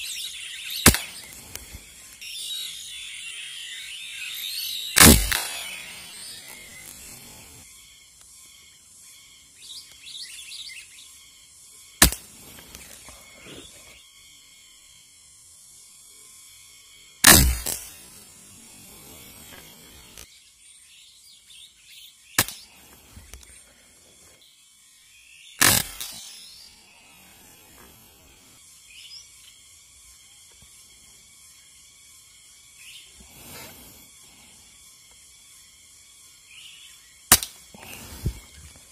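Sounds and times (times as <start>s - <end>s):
insects droning: 0.0s - 38.9s
small birds chirping: 0.0s - 38.9s
air rifle crack: 0.8s - 1.8s, 5.0s - 6.1s, 17.2s - 17.9s, 25.6s - 26.3s
air rifle shot: 5.0s - 6.0s, 17.2s - 17.9s.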